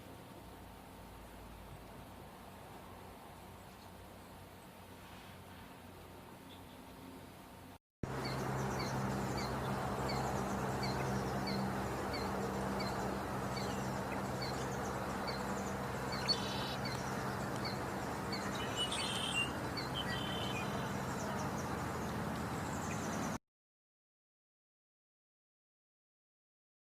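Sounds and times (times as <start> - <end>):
background rush and low hum: 0.0 - 23.4
small bird chirping: 8.1 - 23.4
other bird calls: 8.2 - 23.2.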